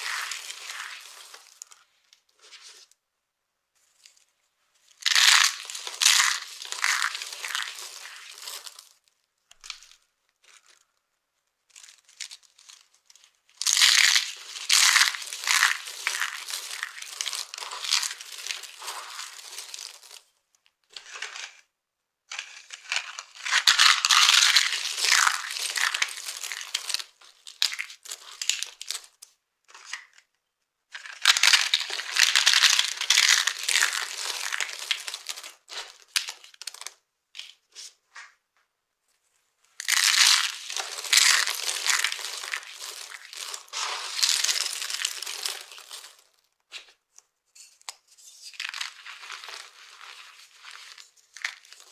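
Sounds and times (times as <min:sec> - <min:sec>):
dry soap crunching: 0:00.0 - 0:01.8, 0:05.0 - 0:09.0, 0:11.7 - 0:20.3, 0:20.9 - 0:21.6, 0:22.3 - 0:29.2, 0:31.0 - 0:37.0, 0:39.8 - 0:46.4, 0:48.5 - 0:51.9.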